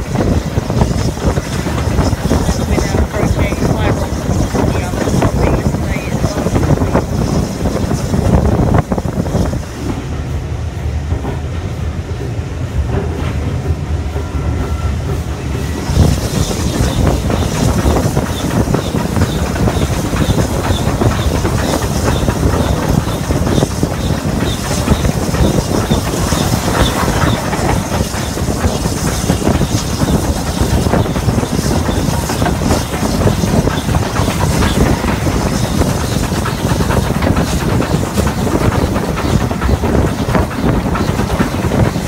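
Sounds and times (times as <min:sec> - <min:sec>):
steam hiss: 0:00.0 - 0:42.0
train wheels rumbling on track: 0:00.0 - 0:42.0.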